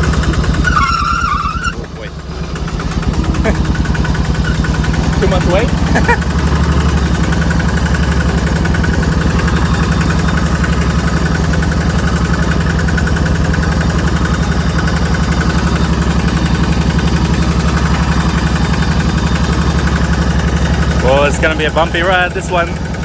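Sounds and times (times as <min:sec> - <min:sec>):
truck engine chugging: 0:00.0 - 0:23.0.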